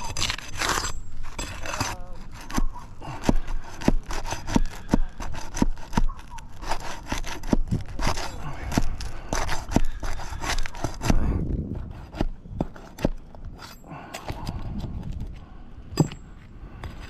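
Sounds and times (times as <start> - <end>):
hand tool rasping wood: 0.0 - 14.6.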